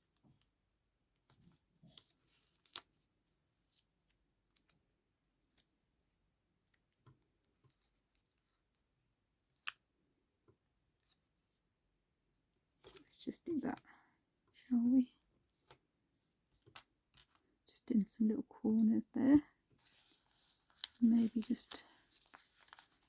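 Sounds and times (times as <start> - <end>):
paper handling: 19.7 - 23.0.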